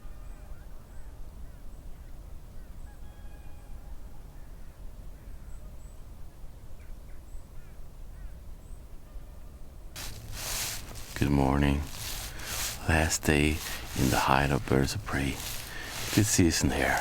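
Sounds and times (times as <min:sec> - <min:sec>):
wild birds calling: 0:10.0 - 0:17.0.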